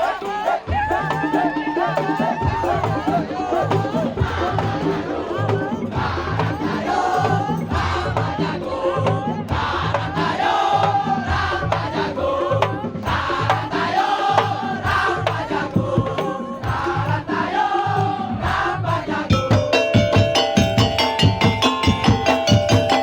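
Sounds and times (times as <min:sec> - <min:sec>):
drums beating rhythm: 0:00.0 - 0:23.0
wavering melody: 0:19.1 - 0:23.0.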